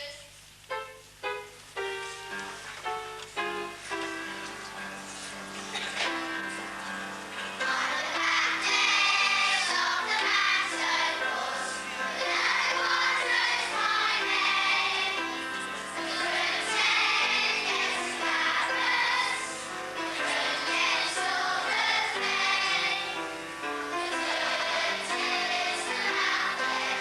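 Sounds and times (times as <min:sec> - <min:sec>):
music playing: 0:00.7 - 0:27.0
children singing: 0:07.6 - 0:23.2, 0:24.0 - 0:27.0.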